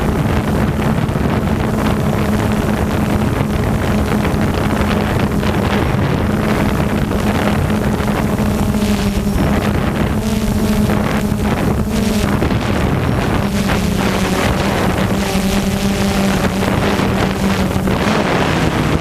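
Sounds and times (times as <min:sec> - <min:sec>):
drone propellers humming: 0:00.0 - 0:19.0
wind buffeting microphone: 0:00.0 - 0:19.0.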